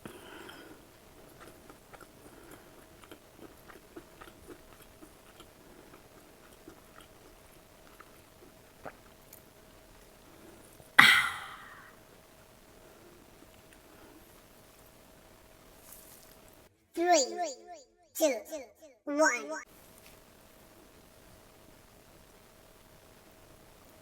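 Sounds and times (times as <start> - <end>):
soft chewing: 0.0 - 11.0, 12.6 - 16.6
faint steady hum: 0.0 - 16.8, 19.7 - 24.0
loud crunchy bite: 1.3 - 8.2
wet mouth clicks: 11.0 - 11.9.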